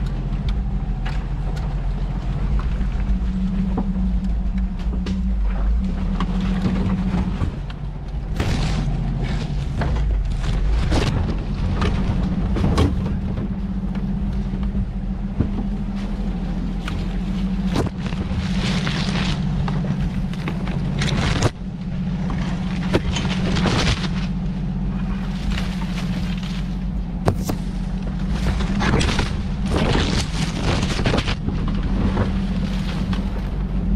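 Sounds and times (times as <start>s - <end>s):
truck engine running: 0.0s - 33.9s
truck knocking and thumping: 0.0s - 33.9s.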